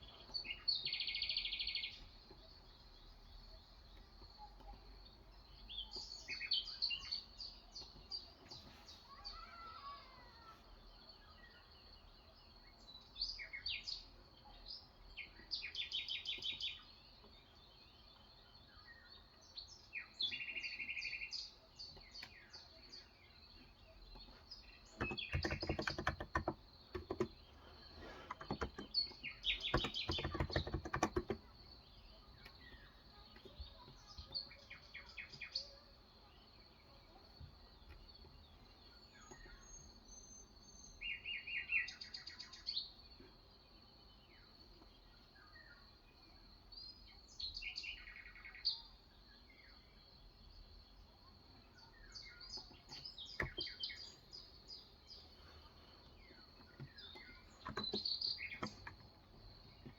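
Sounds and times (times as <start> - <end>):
birds trilling: 24.8 - 35.8
keyboard typing: 25.0 - 27.4, 28.0 - 31.6, 57.6 - 59.1.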